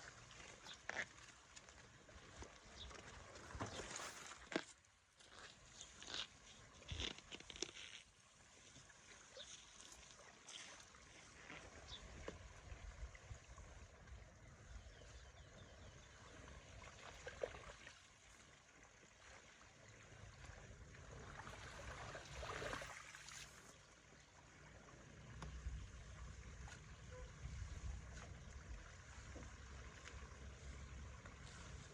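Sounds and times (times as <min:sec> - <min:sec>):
water trickling and gurgling: 0:08.6 - 0:31.9.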